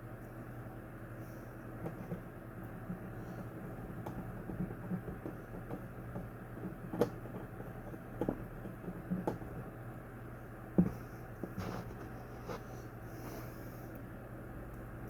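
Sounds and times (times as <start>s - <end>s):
steady low hum: 0.0s - 15.0s
clicks and knocks of fan parts: 1.7s - 9.8s, 10.7s - 12.2s.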